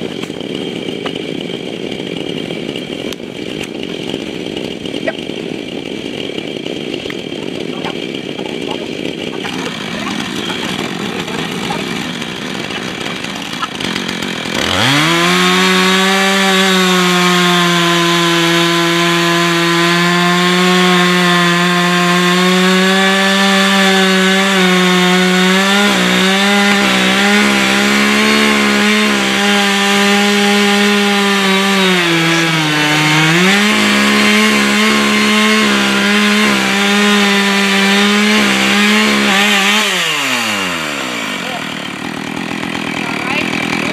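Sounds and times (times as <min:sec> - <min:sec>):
chainsaw cutting wood: 0:00.0 - 0:43.9.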